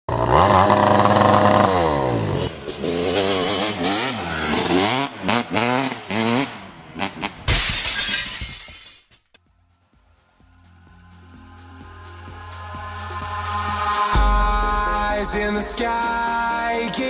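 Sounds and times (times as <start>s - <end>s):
dirt bike engine revving: 0.1s - 7.5s.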